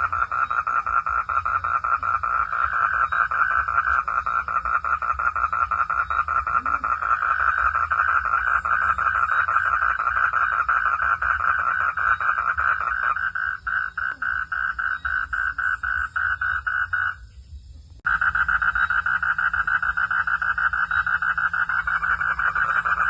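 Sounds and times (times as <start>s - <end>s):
frogs calling in pulsed chorus: 0.0s - 17.3s, 18.0s - 23.0s.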